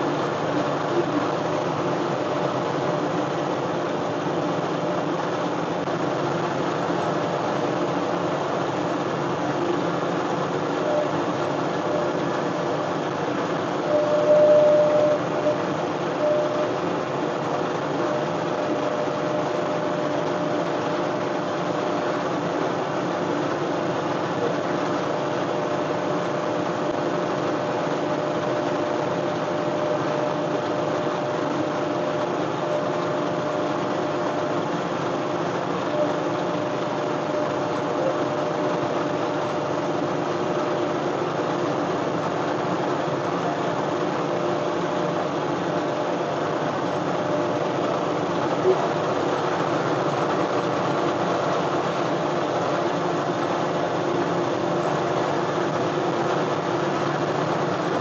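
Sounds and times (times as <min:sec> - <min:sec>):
tractor diesel engine running: 0:00.0 - 0:58.0
steady tone: 0:13.8 - 0:16.8.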